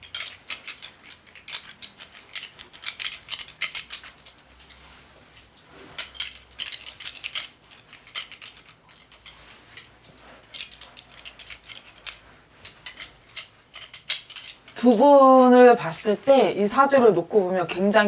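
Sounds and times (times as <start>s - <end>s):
small metal objects jingling: 6.0s - 15.0s.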